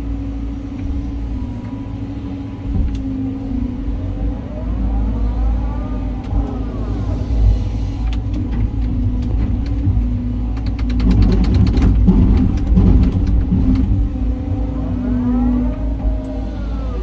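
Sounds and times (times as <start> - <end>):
excavator diesel engine running: 0.0 - 17.0
sharp clicks: 8.0 - 14.0.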